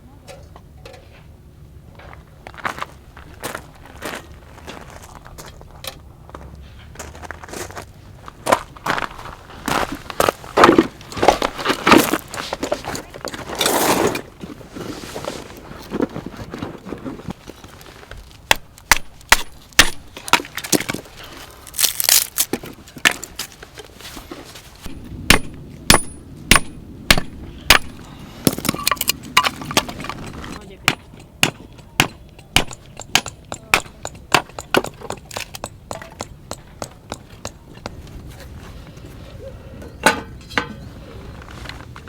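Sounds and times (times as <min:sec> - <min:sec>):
firewood cracking and snapping: 0:17.3 - 0:23.4
sharp wood knocks: 0:18.5 - 0:21.0, 0:24.9 - 0:28.8, 0:29.4 - 0:37.6.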